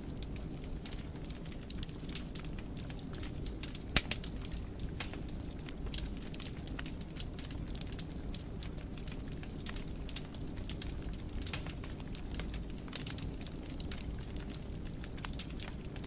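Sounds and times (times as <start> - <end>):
fireplace fire crackling: 0.0 - 16.0.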